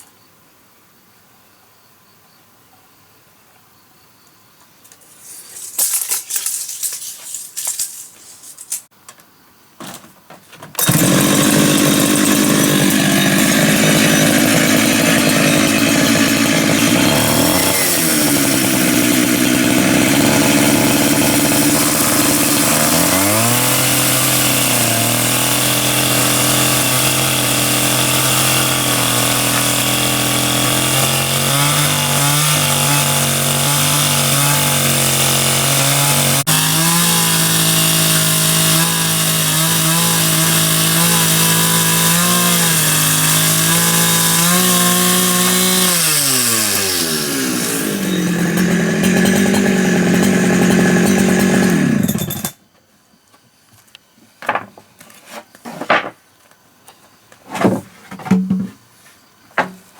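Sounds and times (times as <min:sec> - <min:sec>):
short irregular noises: 0:05.0 - 0:08.9
chainsaw engine running: 0:10.8 - 0:52.5.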